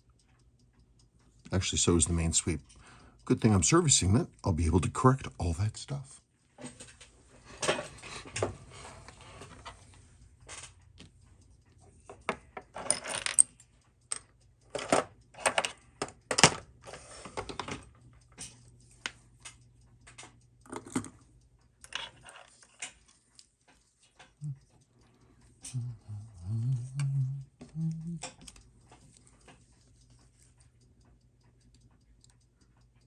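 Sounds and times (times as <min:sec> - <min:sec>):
small metal tools clicking and scraping: 0:11.7 - 0:18.8, 0:21.8 - 0:24.4.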